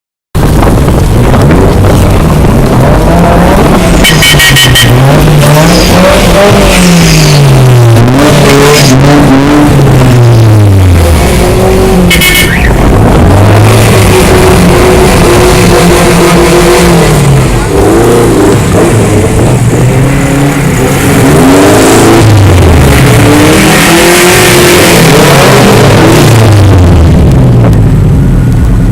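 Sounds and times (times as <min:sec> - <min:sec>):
car engine revving: 0:00.4 - 0:28.9
high squeals: 0:03.8 - 0:07.4, 0:12.0 - 0:12.9.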